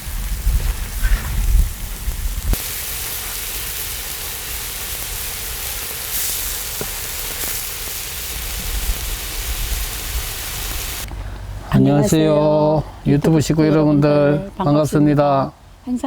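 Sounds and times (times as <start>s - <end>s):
food sizzling on a griddle: 0.0s - 11.1s.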